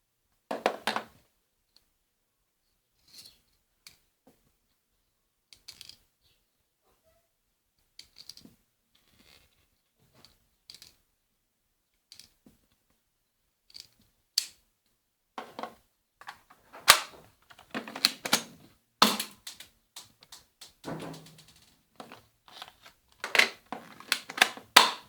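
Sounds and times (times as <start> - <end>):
toy pistol mechanical clacks: 16.2 - 25.0.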